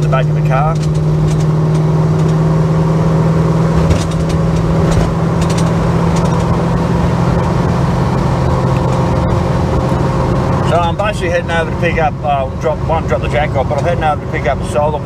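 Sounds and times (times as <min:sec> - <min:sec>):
car engine running: 0:00.0 - 0:15.0
loose jack rattling: 0:03.8 - 0:06.5.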